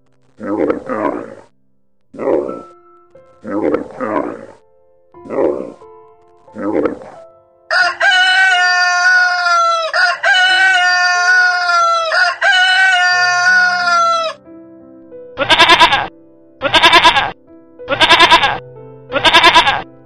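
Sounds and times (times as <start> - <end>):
soft background music: 0.0 - 20.0
rooster crowing: 7.7 - 14.4
goat bleating: 15.4 - 19.8.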